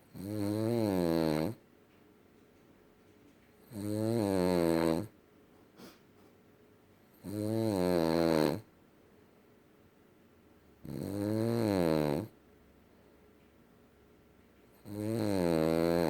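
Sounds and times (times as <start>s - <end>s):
dog snoring heavily: 0.0s - 1.6s, 3.6s - 5.2s, 7.1s - 8.7s, 10.8s - 12.4s, 14.8s - 16.0s.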